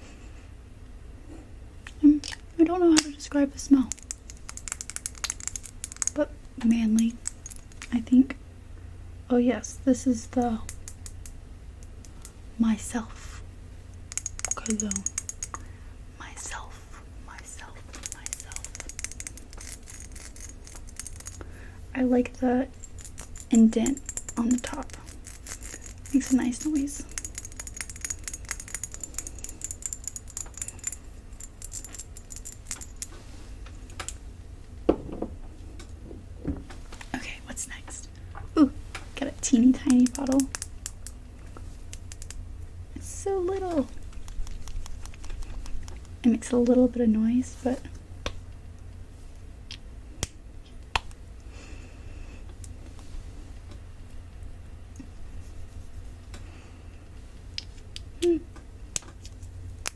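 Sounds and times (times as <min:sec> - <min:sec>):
fingernails tapping on glass bottle: 0:22.8 - 0:33.1.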